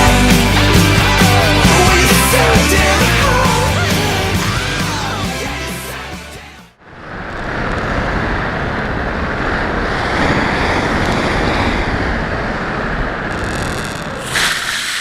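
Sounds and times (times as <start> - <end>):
wind noise on microphone: 6.9 - 15.0.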